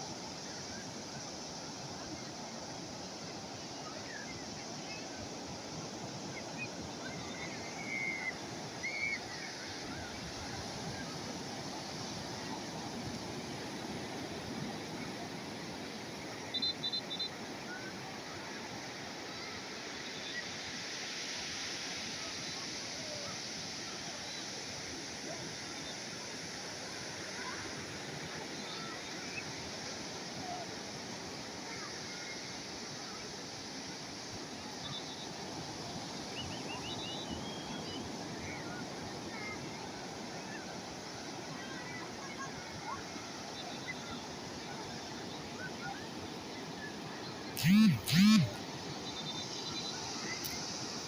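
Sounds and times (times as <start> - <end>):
sea waves washing onto shore: 0.0 - 47.6, 48.5 - 51.0
faint high chirps: 16.5 - 17.8.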